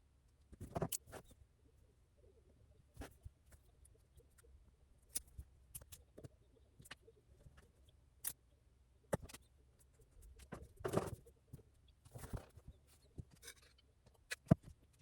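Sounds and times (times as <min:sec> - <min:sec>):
faint small clicks and ticks: 0:03.0 - 0:08.5, 0:09.1 - 0:15.0.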